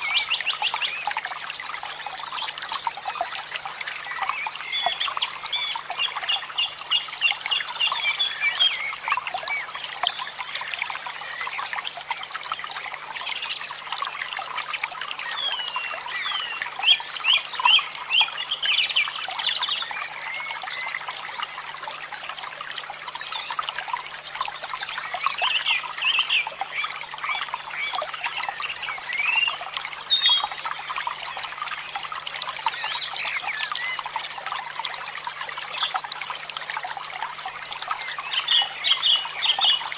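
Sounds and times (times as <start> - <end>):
water trickling and splashing: 0.0 - 39.9
birds chirping: 4.0 - 11.9.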